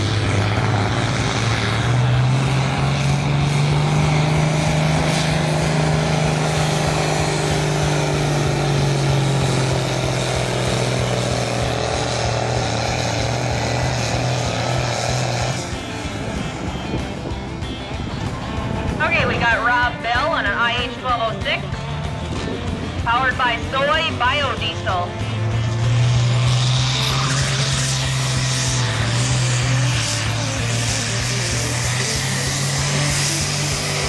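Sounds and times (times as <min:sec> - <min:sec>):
tractor engine under load: 0:00.0 - 0:34.0.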